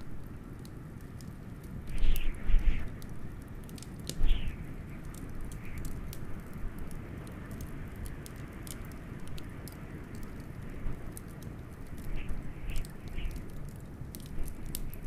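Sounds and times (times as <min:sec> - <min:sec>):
wood fire crackling and popping: 0:00.0 - 0:15.0
wind rushing: 0:01.9 - 0:03.1, 0:04.1 - 0:05.9.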